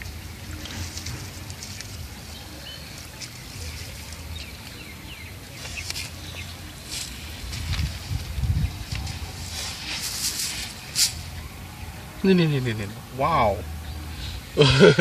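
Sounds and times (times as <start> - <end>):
steady low rumble: 6.2 - 12.2.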